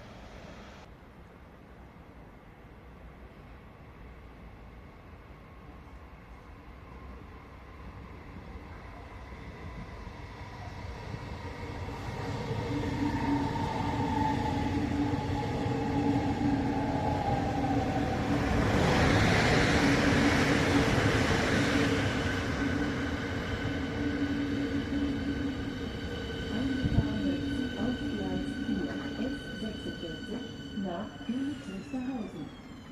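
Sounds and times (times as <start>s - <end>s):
rushing rail noise: 0.0s - 32.9s
electric train passing: 3.0s - 32.9s
train motor whine: 25.9s - 32.9s.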